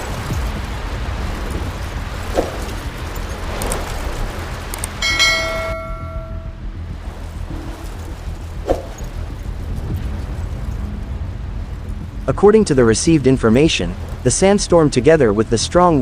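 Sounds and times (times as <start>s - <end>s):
strong wind buffeting microphone: 0.0s - 16.0s
bell-like chime: 5.0s - 6.6s.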